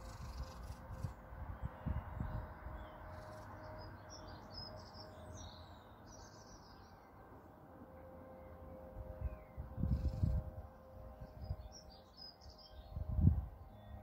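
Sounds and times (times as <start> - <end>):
small birds chirping: 0.0 - 7.1.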